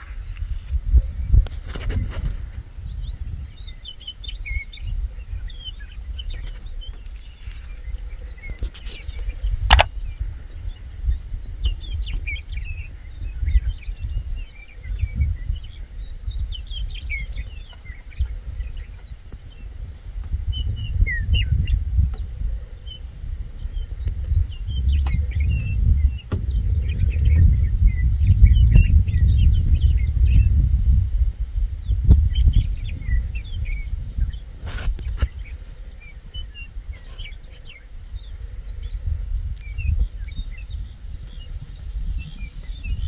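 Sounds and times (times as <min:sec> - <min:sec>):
small birds chirping: 0:00.0 - 0:43.0
wind rumble on microphone: 0:00.0 - 0:43.0
sharp click: 0:09.7 - 0:09.9.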